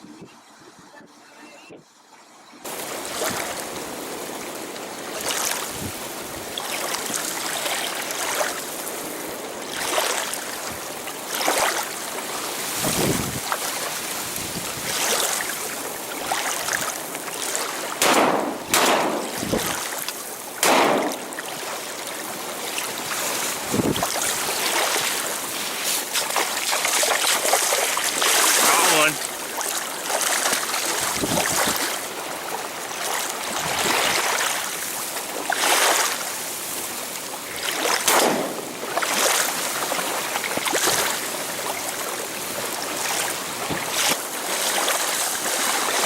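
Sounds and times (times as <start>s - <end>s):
water splashing and lapping: 2.1s - 46.0s
strong wind noise: 12.8s - 13.5s, 18.6s - 19.8s, 23.6s - 24.1s, 31.0s - 31.8s.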